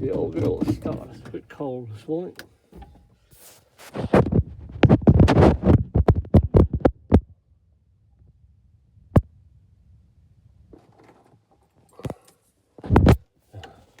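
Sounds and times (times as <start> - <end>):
truck engine cranking: 0.0 - 1.6.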